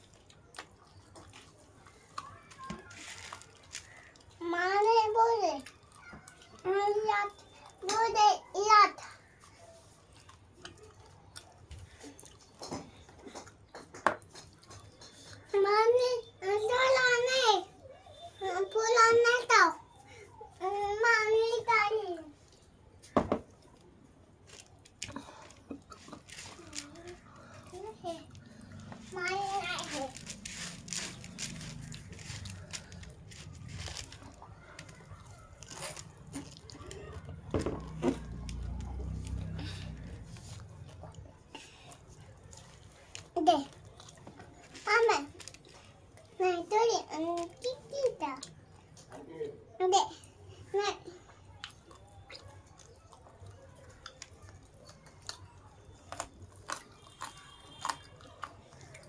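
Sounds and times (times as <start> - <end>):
food being chewed: 0.0 - 4.4, 5.6 - 7.9, 8.9 - 15.5, 22.4 - 46.4, 51.2 - 59.0
crisp crunches: 0.1 - 4.4, 24.4 - 40.0.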